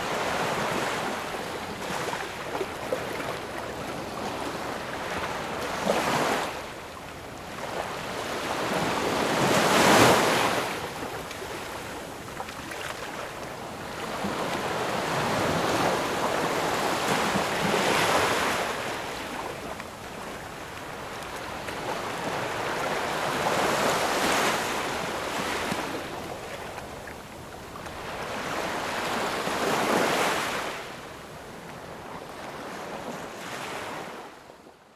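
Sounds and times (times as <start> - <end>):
ocean waves breaking: 13.9 - 27.0.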